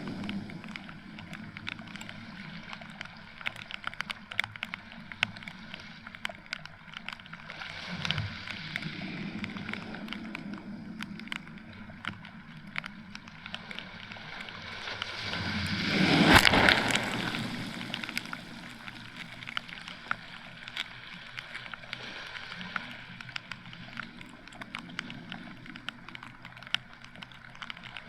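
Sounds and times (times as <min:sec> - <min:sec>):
wave washing up sand: 0:14.7 - 0:19.6
rain hiss: 0:15.1 - 0:23.0
raindrops ticking: 0:16.3 - 0:28.0.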